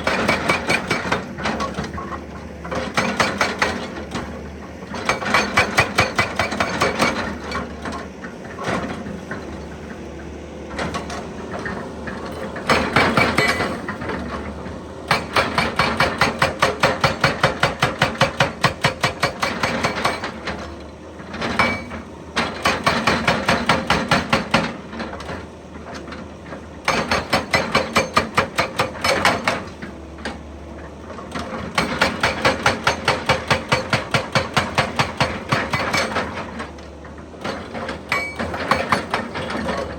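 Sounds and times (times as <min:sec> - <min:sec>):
hydraulic breaker hammering: 0:00.0 - 0:10.0, 0:10.7 - 0:25.4, 0:26.8 - 0:30.4, 0:31.3 - 0:39.9.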